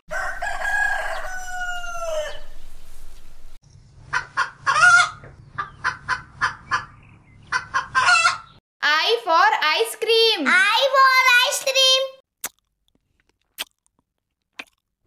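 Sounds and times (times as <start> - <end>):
rooster crowing: 0.1 - 2.8
rooster clucking: 4.1 - 8.6.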